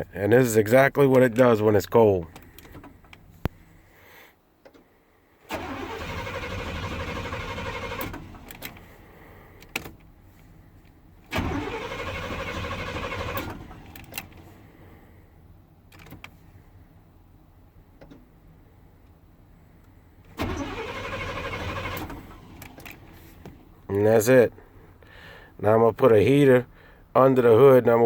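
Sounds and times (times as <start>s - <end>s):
engine cranking by starter: 5.4s - 10.0s, 11.3s - 14.6s, 20.3s - 23.7s
rising starter whine: 5.5s - 9.2s, 11.3s - 14.7s, 20.3s - 23.7s.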